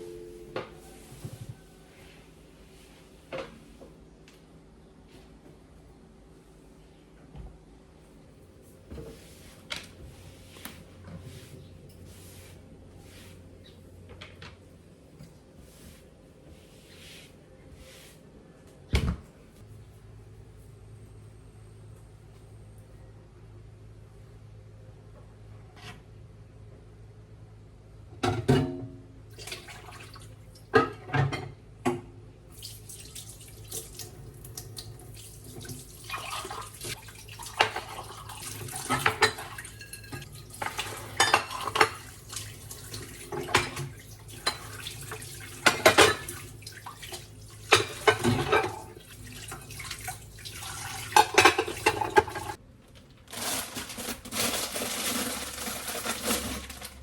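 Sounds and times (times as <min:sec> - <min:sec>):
tap water running: 0:32.5 - 0:52.6
dishes clinking: 0:38.9 - 0:42.1, 0:47.7 - 0:49.0.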